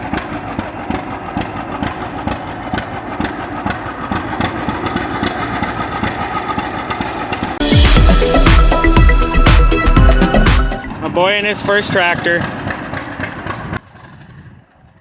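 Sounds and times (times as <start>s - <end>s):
tractor engine idling: 0.0s - 10.9s.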